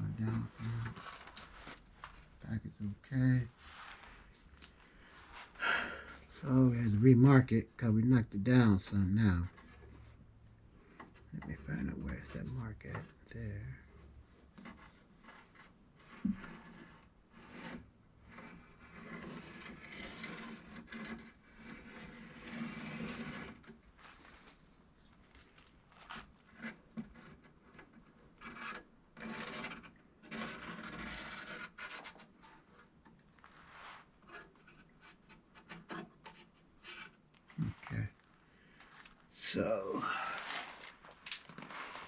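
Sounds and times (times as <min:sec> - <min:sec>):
rubbing and scraping on steel: 0:11.1 - 0:24.5, 0:25.9 - 0:38.0.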